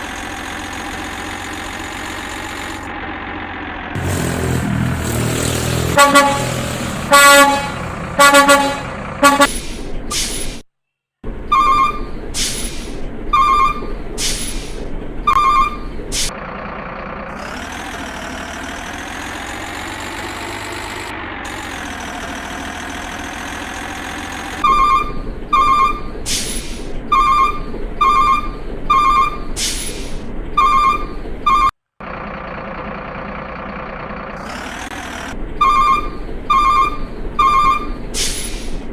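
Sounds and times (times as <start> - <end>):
short horn-like toots: 5.9 - 9.5.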